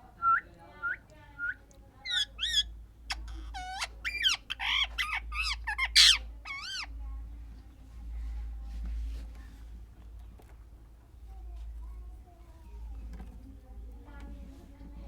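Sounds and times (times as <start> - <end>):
parrot chirp: 2.0 - 6.9
parrot warbling calls: 2.0 - 6.9
loud harsh parrot squawk: 2.1 - 6.9.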